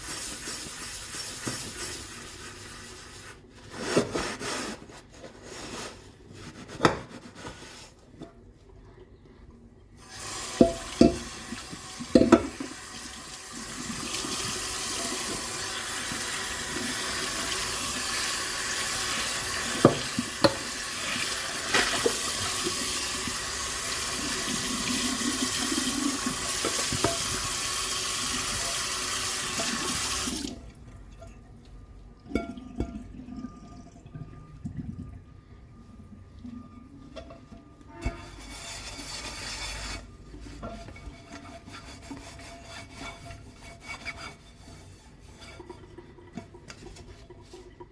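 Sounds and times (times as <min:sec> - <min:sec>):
kitchen tap running into sink: 0:10.0 - 0:30.8
dishes knocking: 0:10.6 - 0:11.4, 0:12.1 - 0:12.7.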